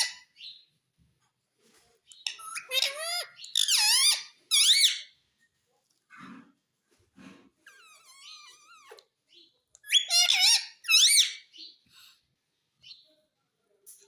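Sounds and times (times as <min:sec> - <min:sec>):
parrot squeaky call: 0:00.0 - 0:00.5, 0:02.2 - 0:05.1, 0:07.7 - 0:11.7
parrot chirps: 0:00.0 - 0:00.6, 0:02.1 - 0:05.2, 0:07.7 - 0:11.8
parrot squawks: 0:02.3 - 0:05.1, 0:09.8 - 0:11.5.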